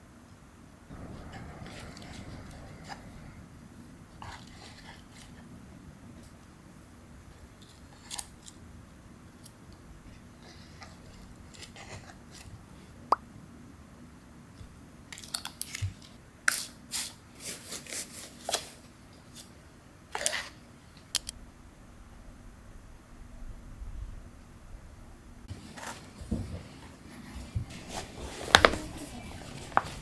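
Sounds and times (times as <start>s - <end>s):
faint steady hum: 0.0s - 17.4s, 18.5s - 30.0s
kitchen taps and clicks: 28.4s - 30.0s.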